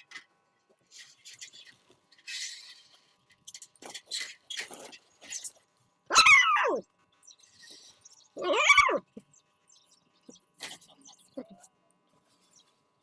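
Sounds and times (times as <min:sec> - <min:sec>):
dog howling: 0:06.1 - 0:06.8, 0:08.4 - 0:09.1.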